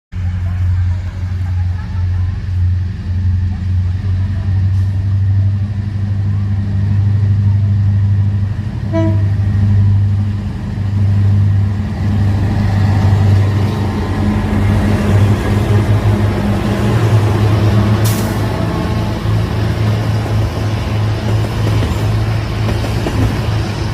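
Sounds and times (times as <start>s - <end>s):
diesel locomotive engine drone: 0.1s - 23.9s
train horn toot: 8.9s - 9.4s.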